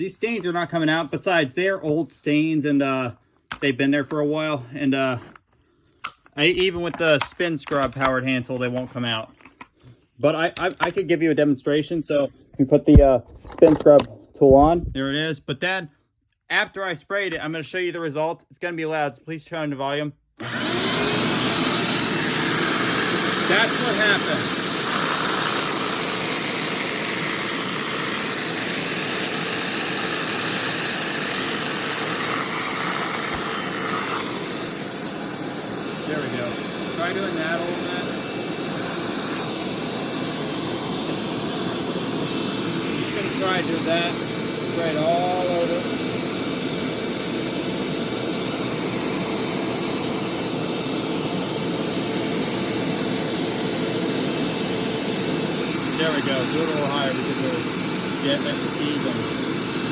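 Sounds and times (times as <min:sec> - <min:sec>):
carpet cleaner motor drone: 0:20.4 - 0:59.9.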